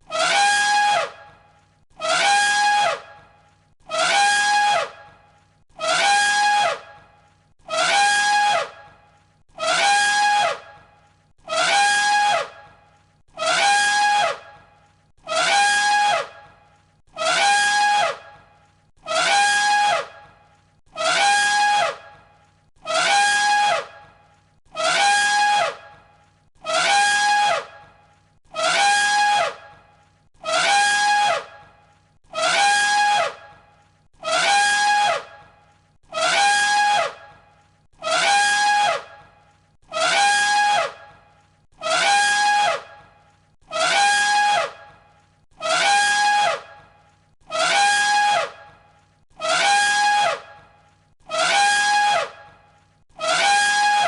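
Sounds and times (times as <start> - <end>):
elephant trumpet call: 0.1 - 1.3, 2.0 - 3.2, 3.9 - 5.0, 5.8 - 7.0, 7.6 - 9.0, 9.6 - 10.8, 11.4 - 12.8, 13.4 - 14.5, 15.2 - 18.4, 19.0 - 20.3, 20.9 - 24.0, 24.7 - 27.9, 28.5 - 29.8, 30.4 - 31.7, 32.3 - 33.6, 34.2 - 37.4, 38.0 - 39.3, 39.9 - 41.2, 41.8 - 43.1, 43.7 - 45.0, 45.6 - 46.9, 47.5 - 48.8, 49.4 - 52.6, 53.2 - 54.0.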